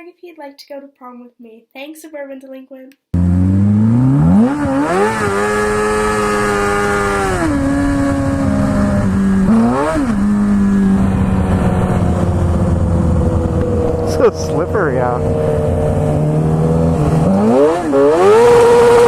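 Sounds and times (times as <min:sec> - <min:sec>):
motorcycle engine revving: 0:03.2 - 0:19.0
road and wind noise: 0:03.2 - 0:19.0.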